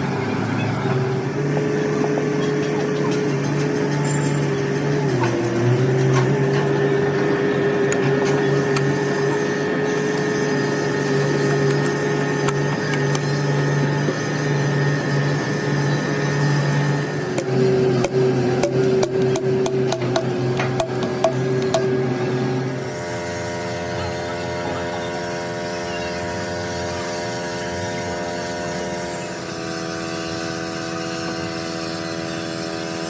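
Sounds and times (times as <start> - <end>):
machine motor humming: 1.2 - 22.8
sharp metallic taps and clicks: 17.4 - 21.9.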